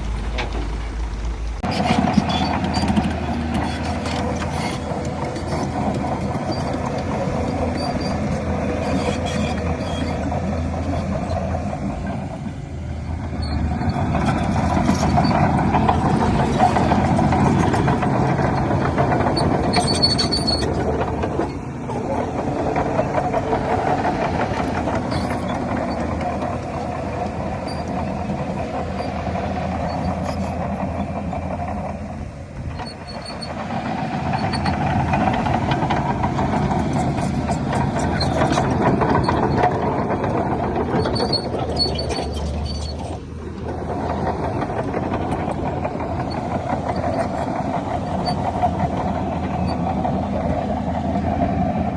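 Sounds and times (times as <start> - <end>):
heavy diesel machinery engine: 0.0 - 51.9
short high squeaks: 1.6 - 10.5, 19.3 - 22.3, 32.7 - 33.6, 40.9 - 43.3.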